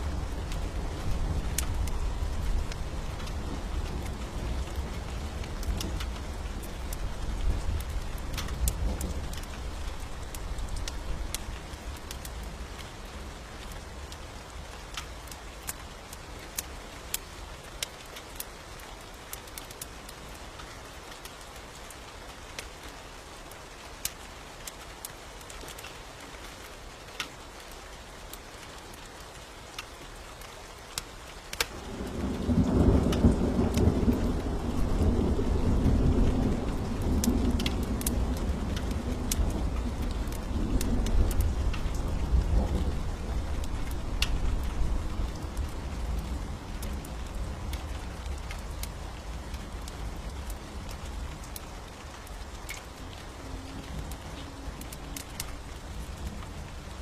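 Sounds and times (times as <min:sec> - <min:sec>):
steady rain: 0:00.0 - 0:57.0
sharp crackles: 0:29.7 - 0:57.0
rolling thunder rumble: 0:31.8 - 0:50.8.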